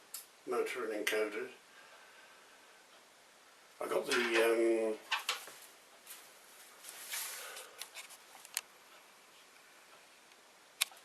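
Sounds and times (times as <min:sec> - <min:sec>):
soft rustle: 0:04.1 - 0:10.0.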